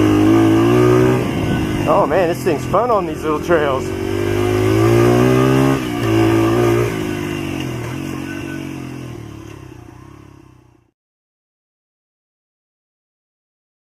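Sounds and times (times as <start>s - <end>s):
small motorcycle engine running: 0.0s - 10.9s.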